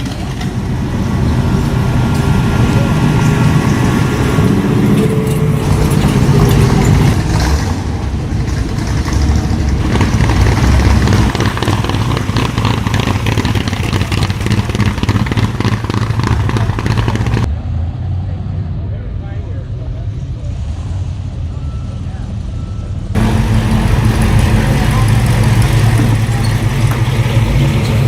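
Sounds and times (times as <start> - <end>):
car engine running: 0.0 - 17.5, 23.2 - 28.0.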